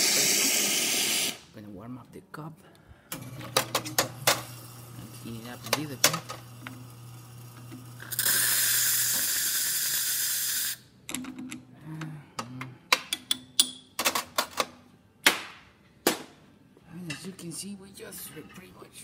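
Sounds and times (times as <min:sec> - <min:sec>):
steam hissing from steam wand: 0:00.0 - 0:01.4.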